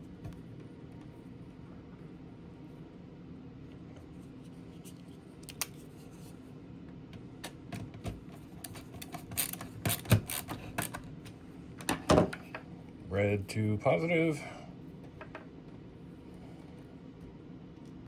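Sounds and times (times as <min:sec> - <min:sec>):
steady low hum: 0:00.0 - 0:18.0
screwdriver clicks and scrapes: 0:08.6 - 0:11.0.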